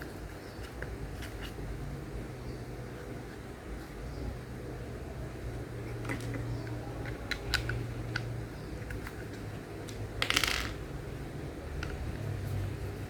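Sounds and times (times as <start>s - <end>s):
plastic pieces clicking: 9.9s - 10.8s
loose pieces rattling: 10.2s - 10.9s.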